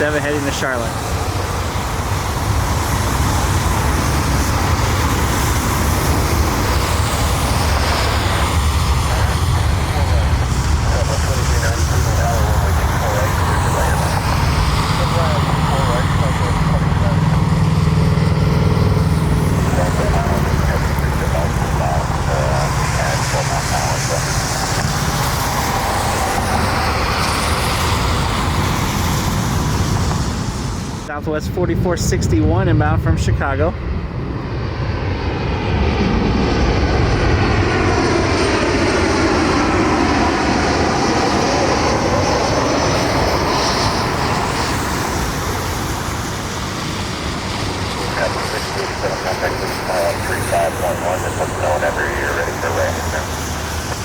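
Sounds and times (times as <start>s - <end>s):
deep rumble: 0.0s - 45.8s
jet engine roar: 0.0s - 54.0s.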